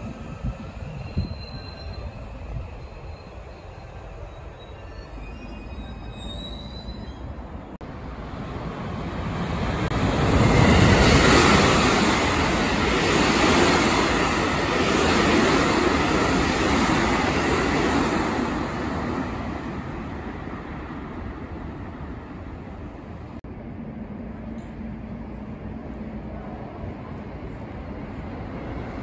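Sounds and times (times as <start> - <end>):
train wheels rushing on rail: 7.8 - 23.4.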